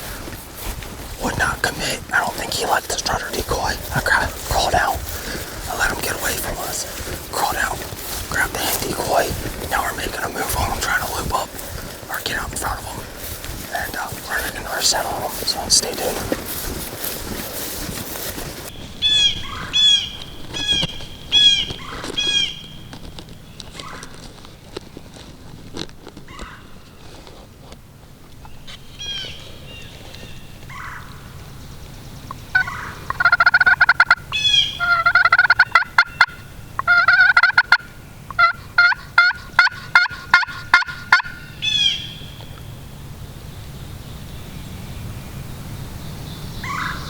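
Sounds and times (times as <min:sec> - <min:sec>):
turkey gobbling: 0:32.3 - 0:42.2
turkey yelps: 0:32.5 - 0:42.2, 0:46.6 - 0:47.0.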